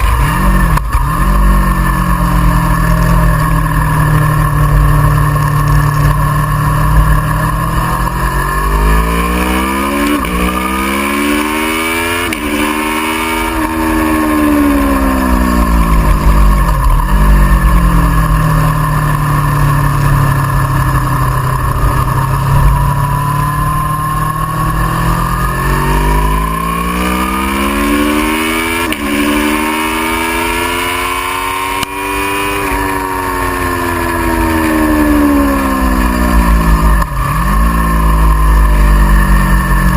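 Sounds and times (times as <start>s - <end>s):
low rumble: 0.0s - 11.3s, 12.4s - 27.3s
motorcycle engine revving hard: 0.0s - 39.9s.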